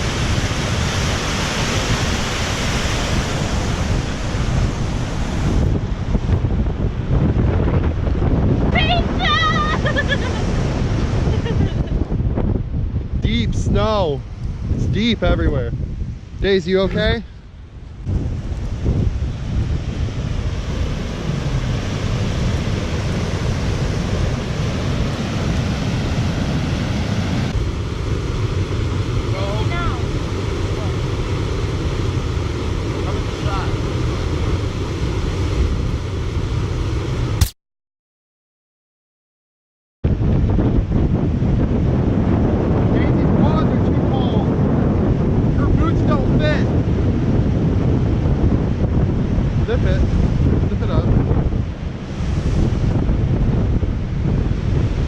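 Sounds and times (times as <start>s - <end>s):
wind buffeting microphone: 0.0s - 37.4s, 40.1s - 55.0s.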